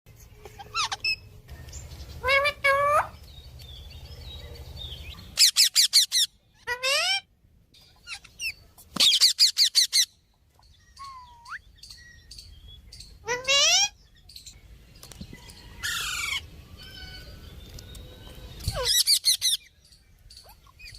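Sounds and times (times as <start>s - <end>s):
parrot calling and screeching: 0.4s - 1.4s, 2.2s - 3.2s, 5.3s - 7.3s, 7.9s - 10.2s, 11.0s - 11.6s, 13.2s - 14.0s, 15.8s - 17.4s, 18.6s - 19.7s.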